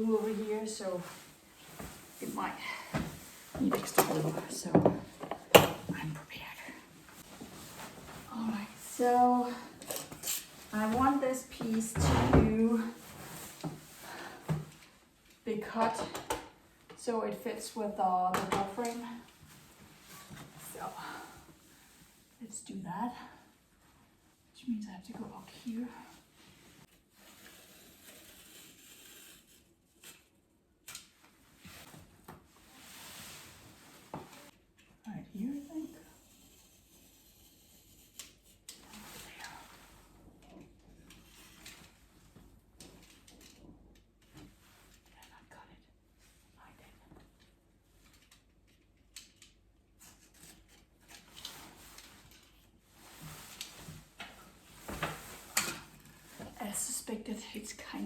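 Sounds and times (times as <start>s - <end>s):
soft rustle: 0.0s - 5.2s, 5.9s - 12.0s, 12.6s - 15.4s, 18.7s - 22.4s, 31.2s - 34.6s, 50.0s - 57.9s.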